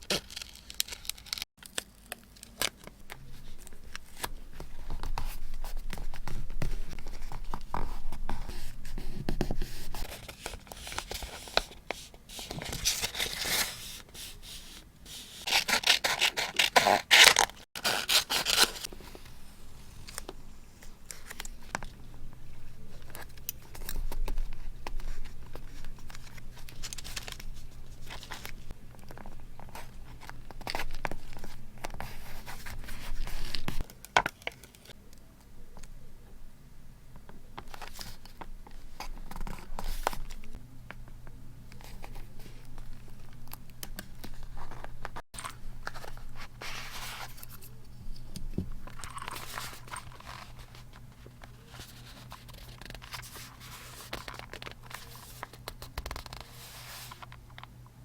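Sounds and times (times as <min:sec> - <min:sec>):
paper scraping and rustling: 0:03.0 - 0:19.4, 0:22.5 - 0:33.9, 0:44.2 - 0:47.8, 0:48.9 - 0:57.4.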